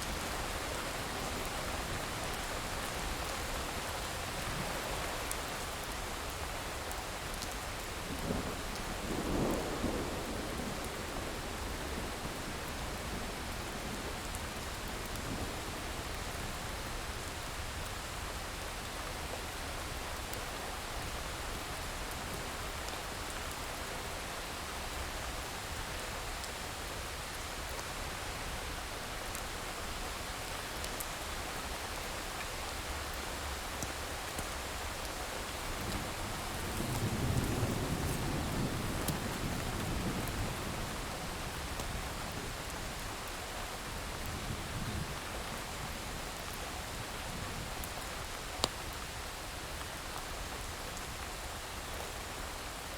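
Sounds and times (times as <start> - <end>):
steady rain: 0.0 - 52.9
thunder rumble: 35.8 - 42.7.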